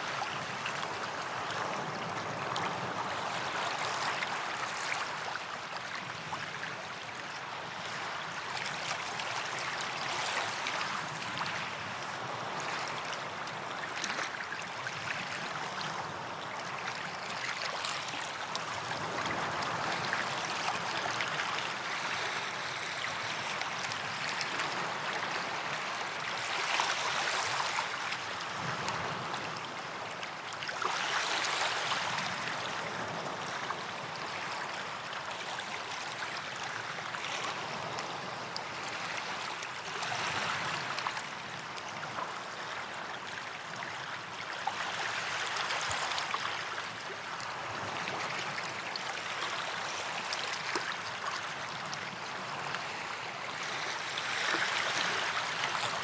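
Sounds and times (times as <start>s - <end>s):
waves washing onto beach: 0.0s - 56.0s.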